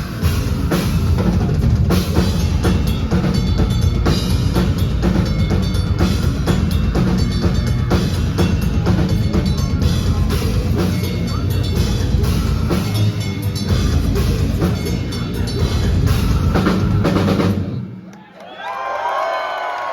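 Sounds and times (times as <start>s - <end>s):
metal band playing live: 0.0s - 17.9s
crowd cheering: 17.1s - 19.9s.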